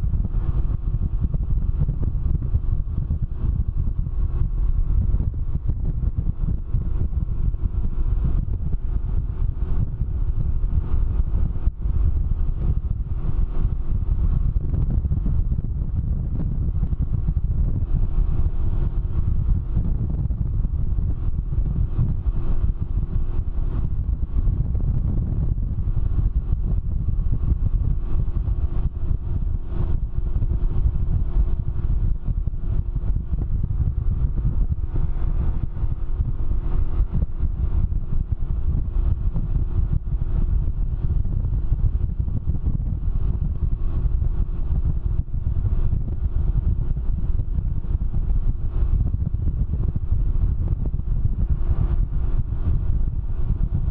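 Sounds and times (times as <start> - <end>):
motorcycle engine running: 0.0 - 53.9
wind noise on microphone: 0.0 - 53.9.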